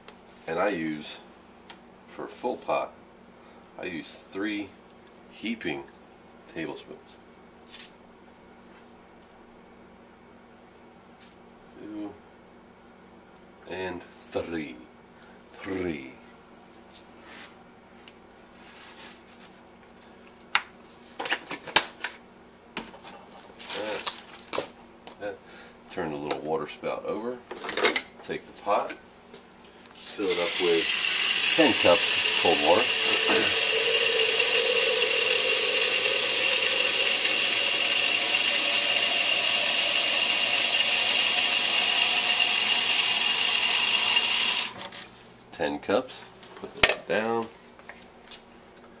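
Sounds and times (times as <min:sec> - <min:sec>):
soft rustle: 0:18.5 - 0:19.7.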